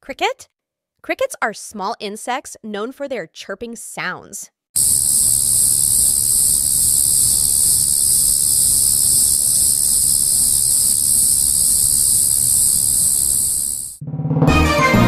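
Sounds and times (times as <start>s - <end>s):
crickets chirping: 4.8s - 14.0s.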